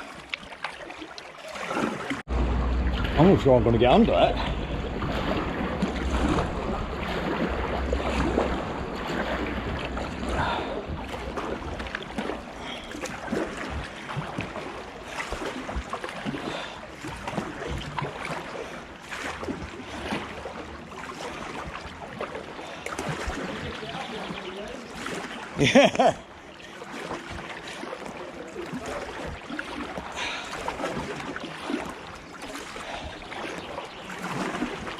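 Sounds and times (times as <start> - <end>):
paddle splashing in water: 0.0 - 34.9
wind rumbling on microphone: 2.3 - 14.6.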